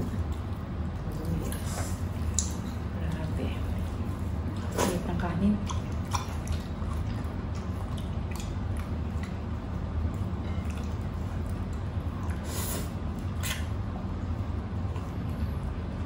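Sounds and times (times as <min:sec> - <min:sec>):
steady low hum: 0:00.0 - 0:16.0
wet chewing and squishing: 0:00.0 - 0:16.0
small mouth clicks: 0:13.4 - 0:13.7
loud wet smacks: 0:13.4 - 0:13.8.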